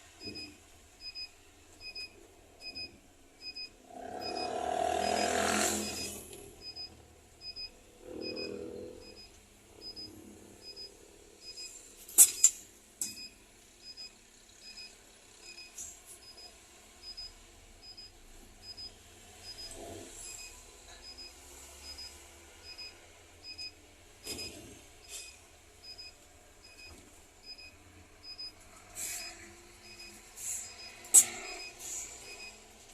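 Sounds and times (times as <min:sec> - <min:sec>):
short high warning beeps: 0:00.2 - 0:12.5, 0:13.1 - 0:32.6.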